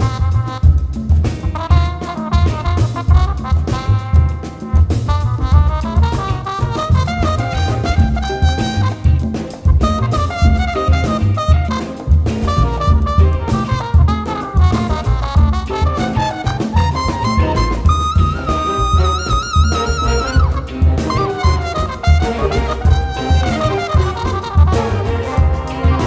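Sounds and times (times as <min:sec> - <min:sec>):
upbeat swing music with horns: 0:00.0 - 0:26.0.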